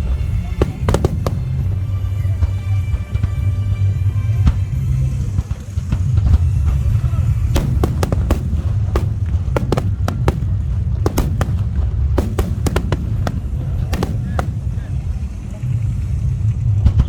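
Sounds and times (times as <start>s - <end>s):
fireworks booming rumble: 0.0s - 3.4s, 4.7s - 17.0s
sharp firework cracks: 0.6s - 2.2s, 7.5s - 15.5s.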